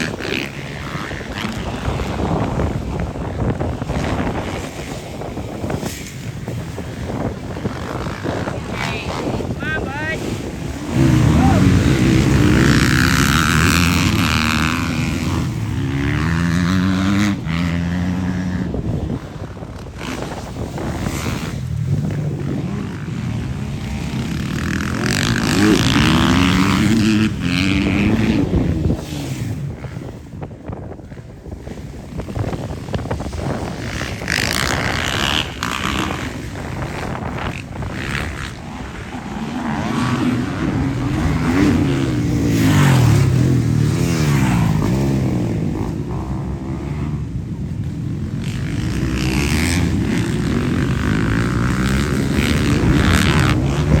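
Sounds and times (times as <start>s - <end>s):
motocross bike engines revving: 0.0s - 54.0s
wind buffeting microphone: 0.0s - 54.0s.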